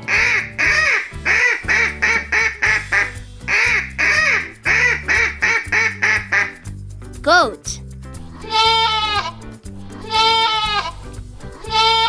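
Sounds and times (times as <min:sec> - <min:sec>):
duck quacking: 0:00.0 - 0:06.6
background music: 0:00.0 - 0:12.0.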